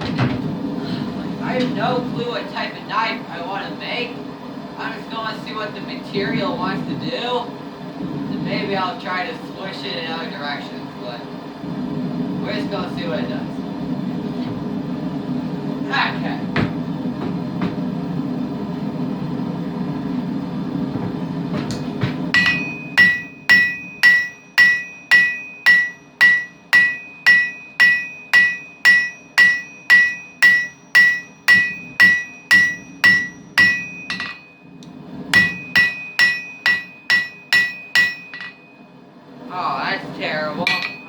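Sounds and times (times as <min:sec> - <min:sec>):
steady low hum: 0:00.0 - 0:41.0
hammer striking steel on anvil: 0:22.3 - 0:34.6, 0:35.4 - 0:38.7, 0:40.7 - 0:41.0.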